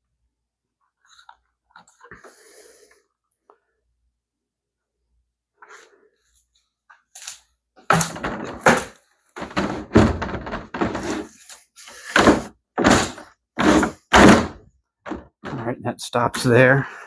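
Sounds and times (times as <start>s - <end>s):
plastic parts thunking together: 7.2s - 15.7s.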